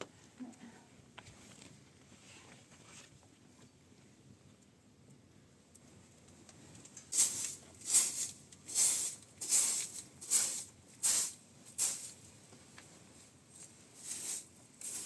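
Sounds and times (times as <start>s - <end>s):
rhythmic hissing brush strokes: 7.1s - 12.4s, 13.5s - 15.0s.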